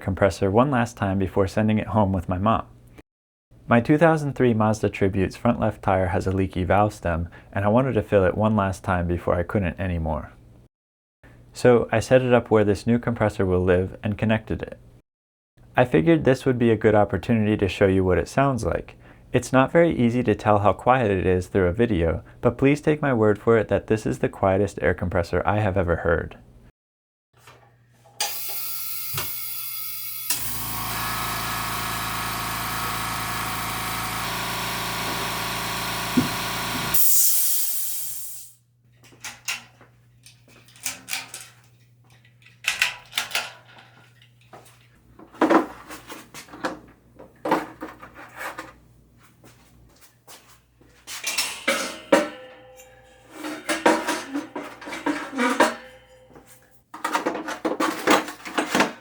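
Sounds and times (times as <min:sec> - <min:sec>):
air compressor running: 0:30.2 - 0:38.6
air hiss burst: 0:36.9 - 0:38.6.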